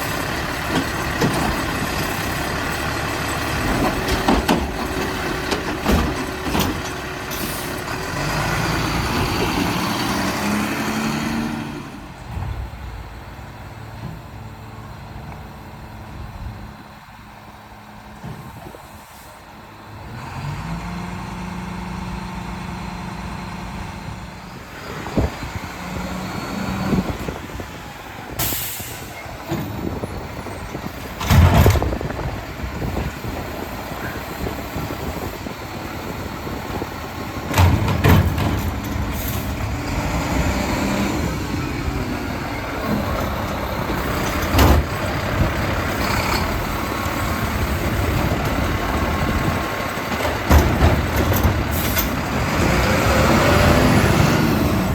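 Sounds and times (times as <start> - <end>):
diesel engine running: 0.0 - 54.9
air-brake hiss: 18.5 - 19.6, 28.3 - 29.4, 39.1 - 39.6.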